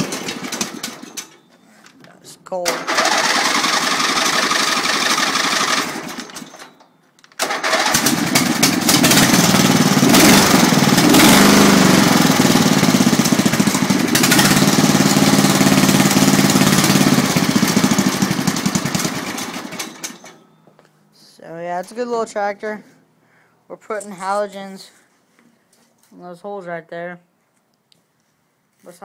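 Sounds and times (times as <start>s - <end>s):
garden tractor engine running: 0.0s - 1.4s, 2.6s - 6.6s, 7.4s - 20.4s.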